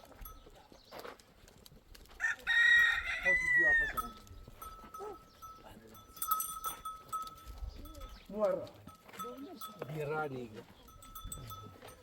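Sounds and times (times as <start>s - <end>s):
rooster crowing: 2.2s - 4.0s.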